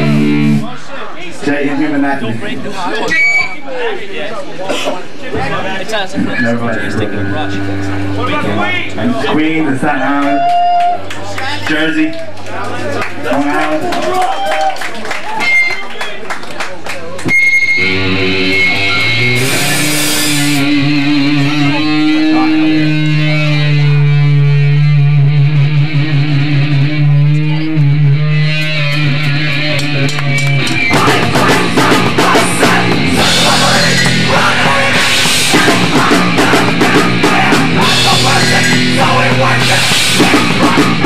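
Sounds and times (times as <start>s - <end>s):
distorted electric guitar chords: 0.0s - 0.7s, 6.2s - 12.0s, 17.2s - 41.0s
drums: 0.0s - 0.7s, 17.2s - 41.0s
punk band playing fast: 0.0s - 0.7s, 6.2s - 11.9s, 17.2s - 41.0s.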